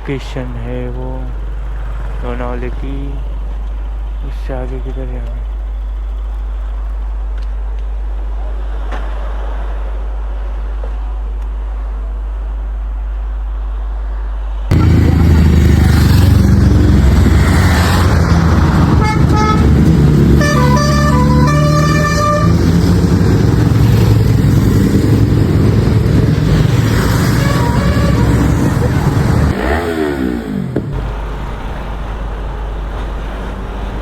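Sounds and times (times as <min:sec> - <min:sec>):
road traffic noise: 0:00.0 - 0:34.0
vehicle horns honking: 0:14.7 - 0:30.3.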